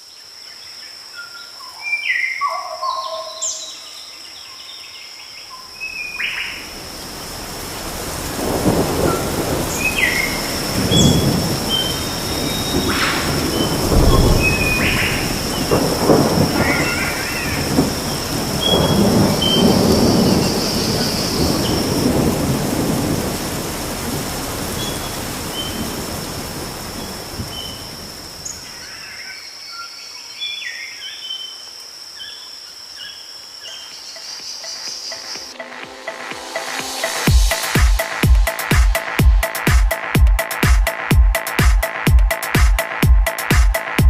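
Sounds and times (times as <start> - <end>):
rain: 3.4 - 39.8
rolling thunder: 6.6 - 28.6
steady high tone: 34.6 - 40.6.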